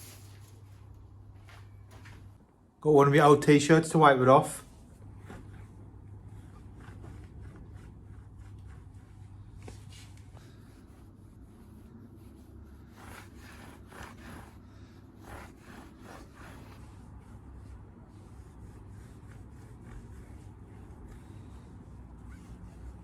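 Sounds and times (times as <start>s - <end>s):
steady low hum: 0.0s - 23.0s
rag wiping metal: 4.7s - 23.0s.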